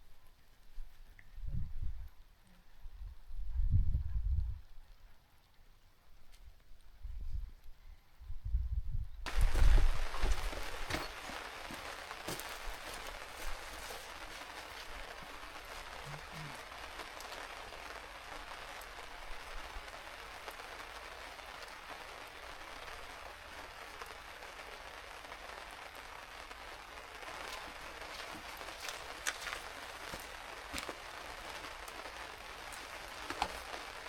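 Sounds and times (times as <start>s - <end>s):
rain patter: 9.2s - 34.0s.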